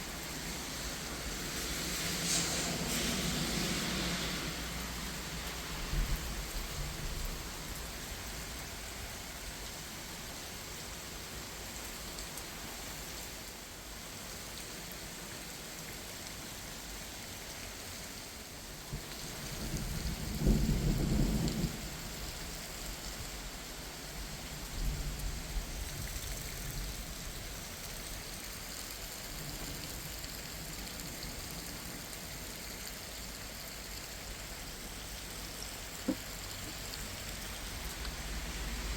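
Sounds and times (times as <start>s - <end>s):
steady rain falling: 0.0s - 38.9s
thunder rumbles: 19.5s - 22.6s.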